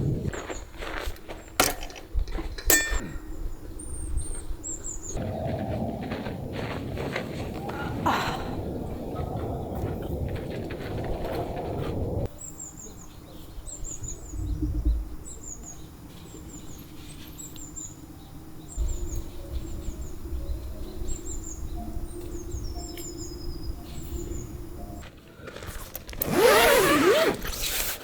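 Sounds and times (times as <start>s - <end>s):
small birds chirping: 0.1s - 1.6s, 2.4s - 5.6s, 12.1s - 25.0s
low rumble: 3.5s - 12.3s, 13.8s - 15.8s.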